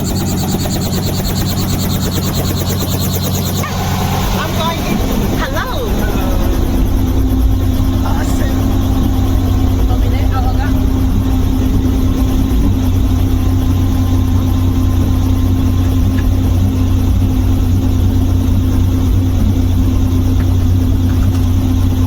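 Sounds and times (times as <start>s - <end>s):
helicopter engine and rotor: 0.0s - 22.0s.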